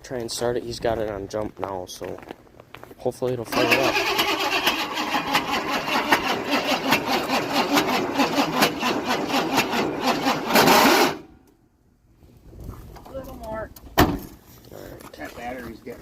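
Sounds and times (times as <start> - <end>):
engine cranking on starter: 3.5 - 11.3.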